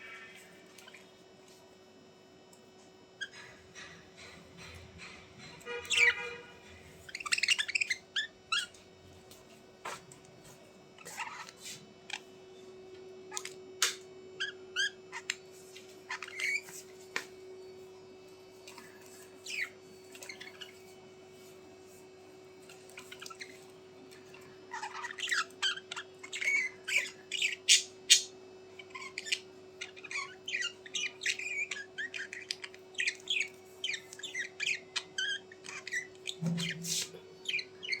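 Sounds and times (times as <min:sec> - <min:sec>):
small birds chirping and squawking: 0:00.0 - 0:01.6, 0:03.2 - 0:08.8, 0:09.8 - 0:12.3, 0:13.3 - 0:17.3, 0:18.6 - 0:22.0, 0:22.6 - 0:38.0.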